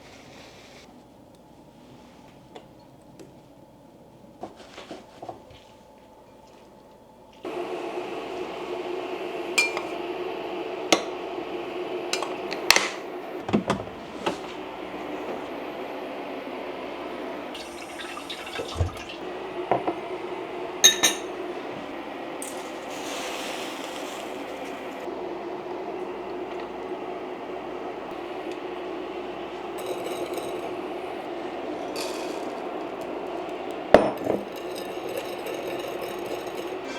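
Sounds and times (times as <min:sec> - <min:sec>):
tap water running: 0:07.5 - 0:36.9
glass and dishes clinking: 0:20.8 - 0:21.4, 0:29.8 - 0:31.0, 0:33.9 - 0:36.9.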